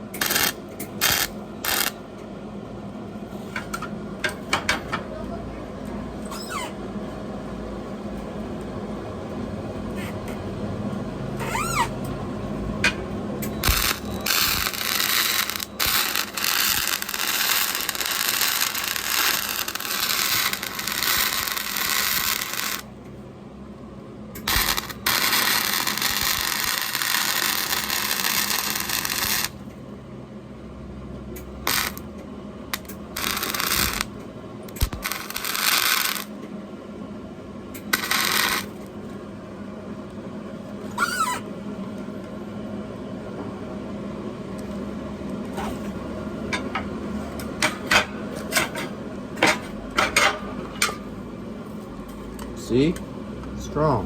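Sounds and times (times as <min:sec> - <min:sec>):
arc welding crackle: 0:00.0 - 0:02.0, 0:13.4 - 0:23.0, 0:24.4 - 0:29.7, 0:31.4 - 0:36.4, 0:37.8 - 0:39.0.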